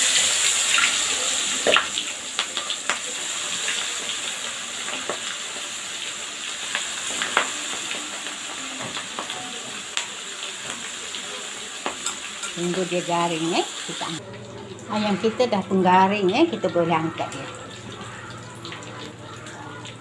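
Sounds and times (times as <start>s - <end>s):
chicken deep-frying in oil: 0.0s - 20.0s
oil crackles and pops: 1.6s - 11.0s.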